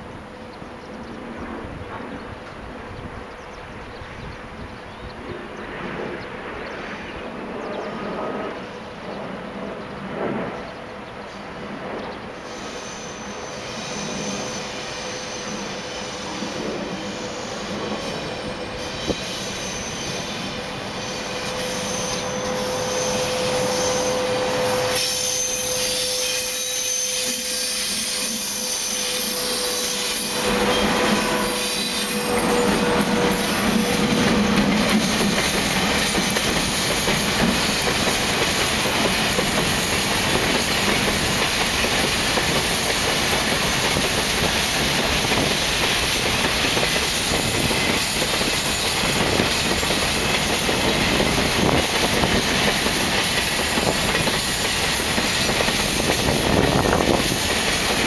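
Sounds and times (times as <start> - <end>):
freight train passing: 0.0 - 58.0
steady locomotive tone: 0.0 - 58.0
wheels clattering on rails: 32.4 - 58.0.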